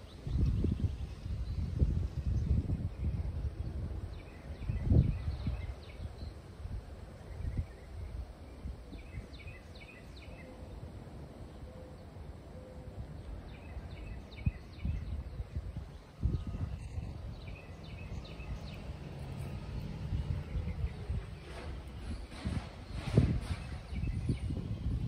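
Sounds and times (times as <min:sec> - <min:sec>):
constant low rumble: 0:00.0 - 0:25.0
sharp bumps: 0:21.2 - 0:24.4.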